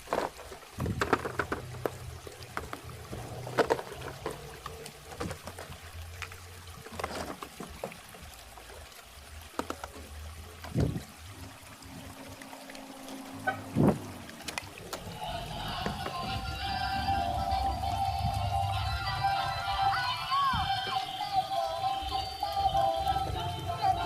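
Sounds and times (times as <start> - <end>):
sharp clicks and knocks: 0.0 - 6.3
water trickling: 0.0 - 24.0.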